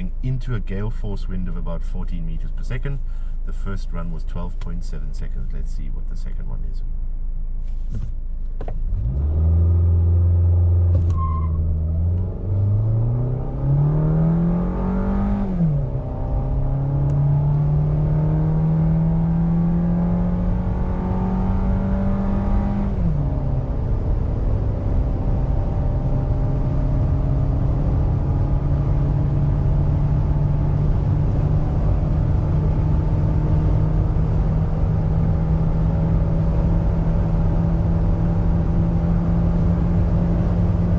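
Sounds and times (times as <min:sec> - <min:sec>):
wind noise against car window: 0:07.6 - 0:09.0
car engine accelerating: 0:07.6 - 0:40.9.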